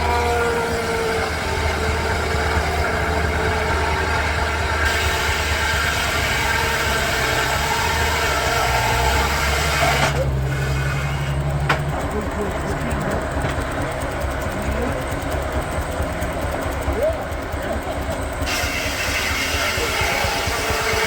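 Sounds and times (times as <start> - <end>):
steady low tone: 0.0 - 7.0
steam traction engine and sawmill: 0.0 - 21.0.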